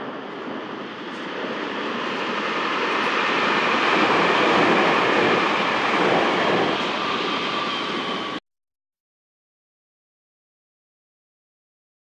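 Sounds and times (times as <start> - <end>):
electric train passing: 0.0 - 8.4.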